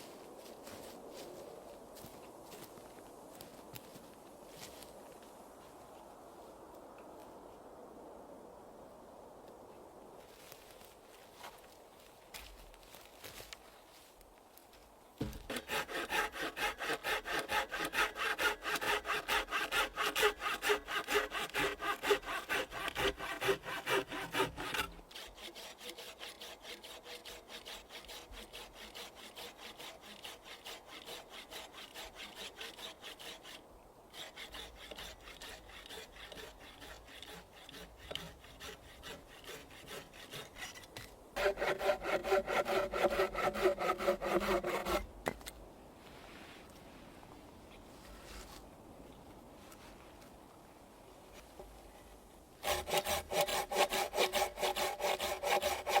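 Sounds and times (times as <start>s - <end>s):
hand saw cutting wood: 15.2s - 45.1s, 52.6s - 56.0s.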